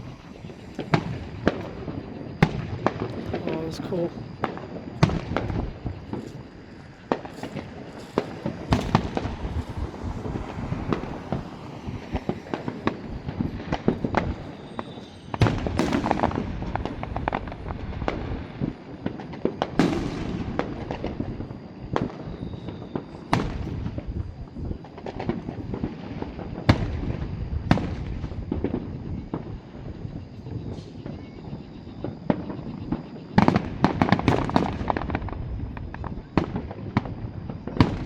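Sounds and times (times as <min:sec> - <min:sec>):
big fireworks booms: 0:00.0 - 0:38.0
fireworks bangs and crackles: 0:00.0 - 0:38.0.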